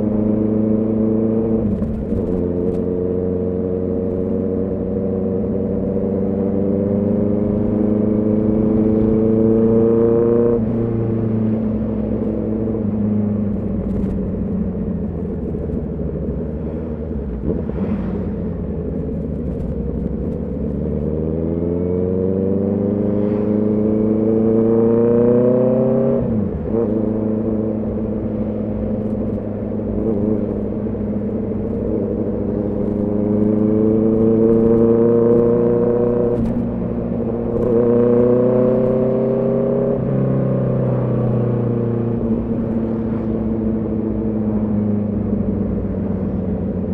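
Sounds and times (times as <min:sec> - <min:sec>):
motorcycle engine revving: 0:16.6 - 0:46.9.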